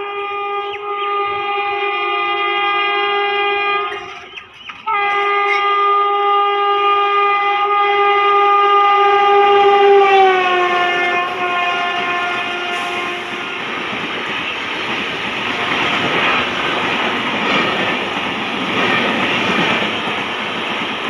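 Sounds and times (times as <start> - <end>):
locomotive horn blast: 0.0 - 14.0, 15.4 - 16.6
passing train rumble: 0.0 - 21.0.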